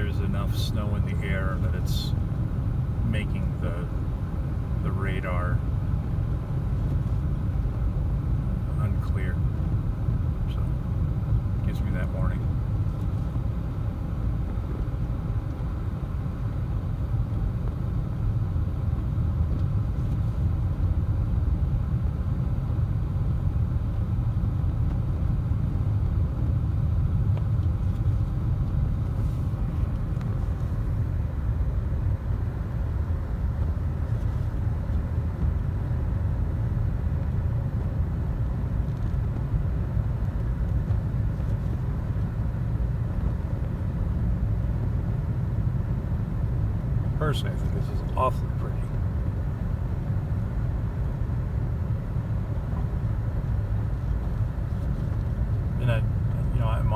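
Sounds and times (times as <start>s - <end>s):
road and tyre noise in car cabin: 0.0s - 56.9s.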